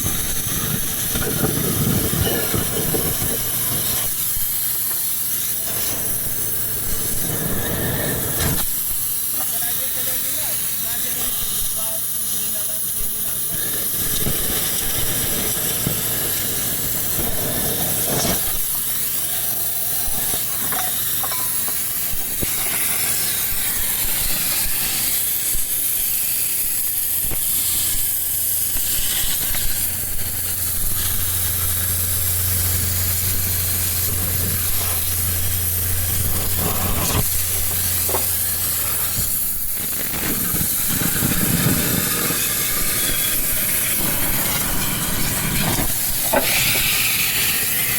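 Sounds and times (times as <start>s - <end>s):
hissing workshop machine: 0.0s - 47.9s
low hum: 29.9s - 39.8s.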